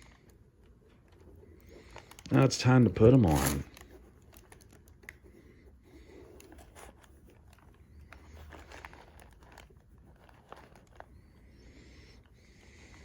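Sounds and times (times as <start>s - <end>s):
packaging crinkling: 0.0s - 5.1s, 6.4s - 11.4s.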